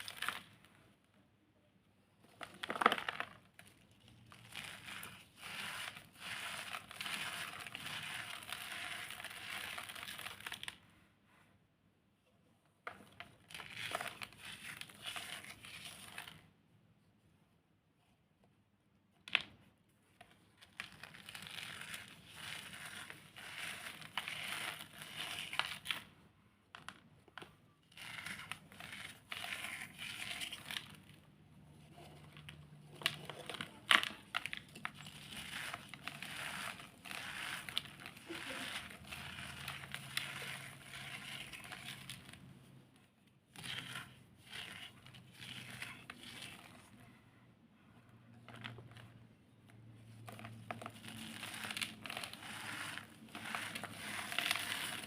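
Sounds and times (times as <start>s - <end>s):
cornstarch chunks crunching by hand: 2.4s - 10.8s, 20.7s - 26.1s, 27.9s - 31.2s, 32.4s - 42.5s, 50.3s - 55.0s.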